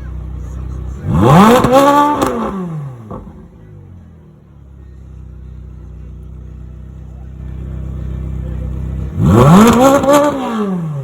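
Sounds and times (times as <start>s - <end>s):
sports car engine revving: 0.0s - 11.0s.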